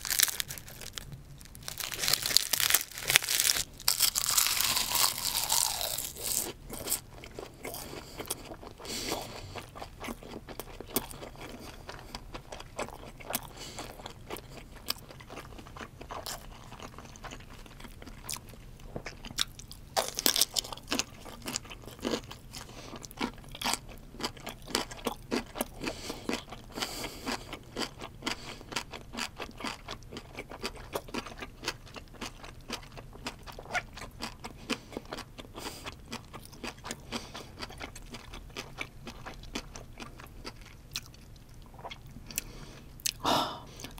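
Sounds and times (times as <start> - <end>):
loud crunch of a bite: 0.0 - 15.0
crunchy chewing: 0.0 - 43.9.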